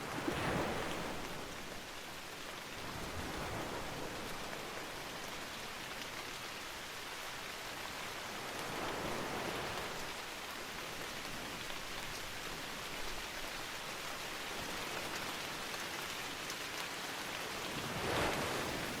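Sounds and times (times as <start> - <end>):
steady rainfall: 0.0 - 19.0.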